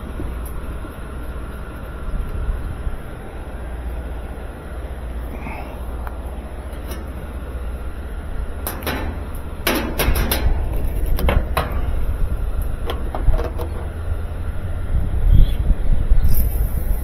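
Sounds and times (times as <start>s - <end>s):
low hum: 0.0s - 17.0s
knocks and clicks from handling: 12.8s - 13.9s.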